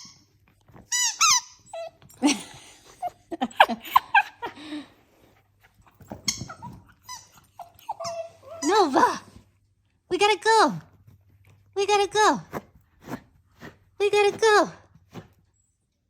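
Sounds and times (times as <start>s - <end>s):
squeaky dog toy: 0.0s - 0.3s, 0.9s - 2.1s, 6.1s - 9.1s
small dog whining: 1.0s - 2.3s, 5.9s - 9.2s.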